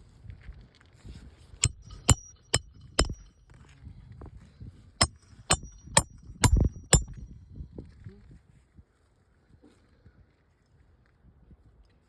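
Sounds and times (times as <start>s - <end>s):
hammer driving nails: 1.6s - 3.3s, 5.0s - 7.2s
short metallic ring: 1.6s - 3.3s, 5.0s - 7.3s.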